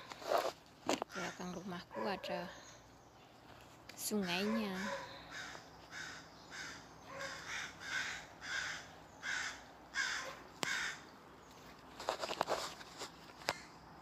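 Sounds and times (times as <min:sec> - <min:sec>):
crows cawing: 0:04.2 - 0:11.2.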